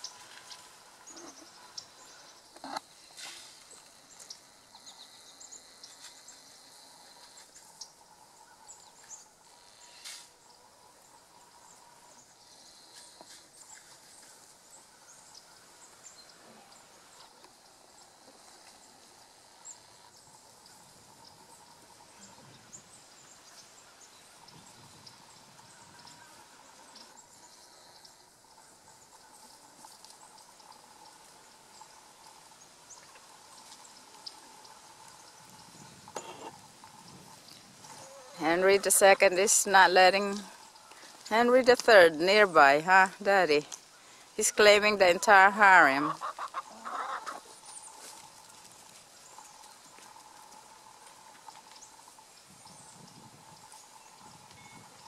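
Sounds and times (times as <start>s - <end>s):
low steady hiss: 0.0s - 55.0s
faint steady tone: 47.5s - 55.0s.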